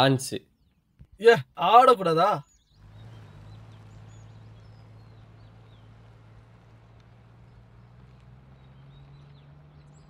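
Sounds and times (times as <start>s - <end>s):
birds chirping and whistling: 2.3s - 5.9s.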